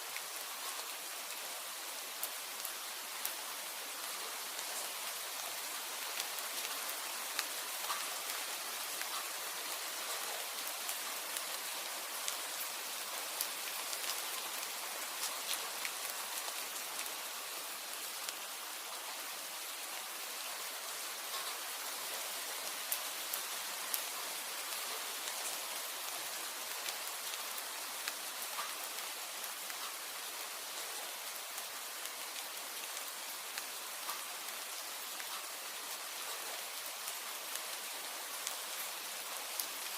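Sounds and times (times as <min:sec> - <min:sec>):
steady rain falling: 0:00.0 - 0:39.9
raindrop ticks: 0:06.0 - 0:11.6, 0:21.2 - 0:21.6, 0:26.6 - 0:29.1, 0:29.7 - 0:30.4, 0:33.6 - 0:38.6.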